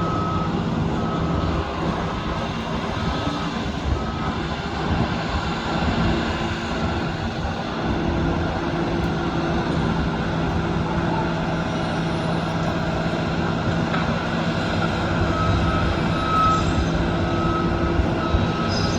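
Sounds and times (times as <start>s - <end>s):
construction machinery engine drone: 0.0s - 18.9s
backup alarm beeping: 14.8s - 18.9s.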